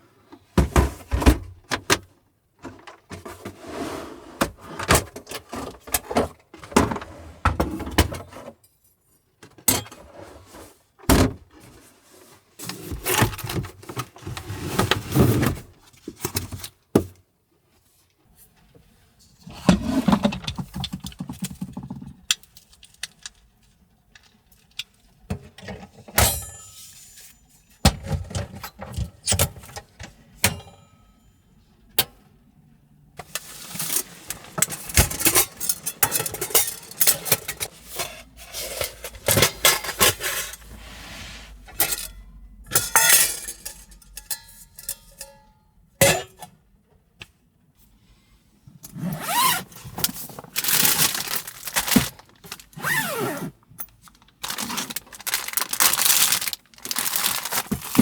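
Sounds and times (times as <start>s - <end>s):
clinks: 41.8s - 46.4s
rustling: 49.2s - 53.4s, 54.0s - 58.0s.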